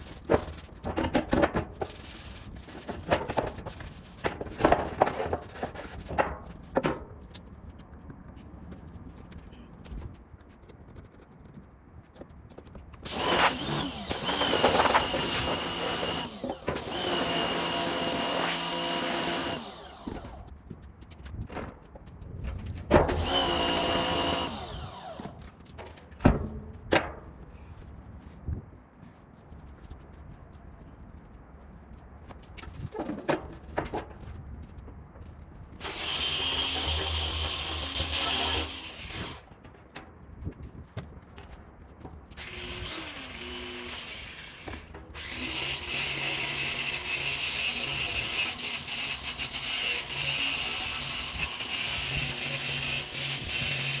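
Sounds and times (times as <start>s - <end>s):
power tool whine: 13.0s - 20.5s, 23.0s - 25.6s, 35.8s - 39.4s, 42.4s - 54.0s.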